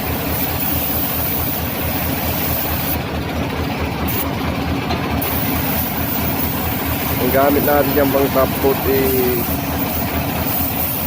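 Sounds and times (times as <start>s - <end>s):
air hissing: 0.0s - 3.0s, 5.2s - 11.0s
engine-driven machine throbbing: 0.0s - 11.0s.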